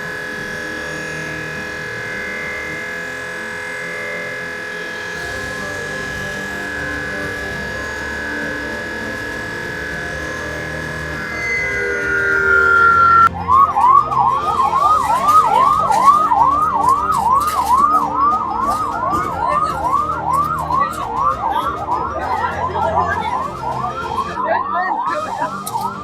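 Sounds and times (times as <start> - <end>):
siren yelping: 0.0 - 26.0.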